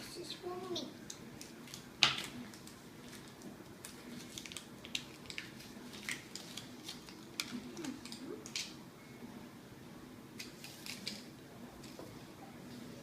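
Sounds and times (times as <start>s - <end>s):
wrapper crinkling: 1.4s - 8.7s.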